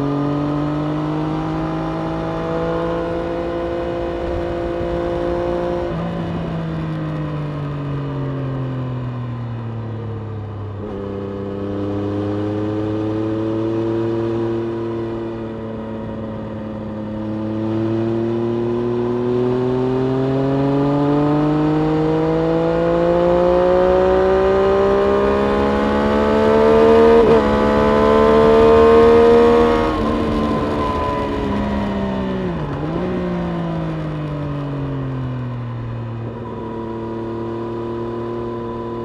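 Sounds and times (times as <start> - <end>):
motorcycle engine under load: 9.5 - 39.0.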